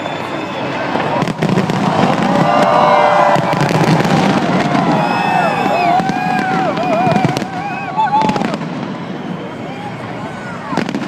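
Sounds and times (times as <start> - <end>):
crowd shouting: 0.0 - 11.0
fireworks bangs and crackling: 0.0 - 11.0
shrill firework whistles: 0.0 - 11.0.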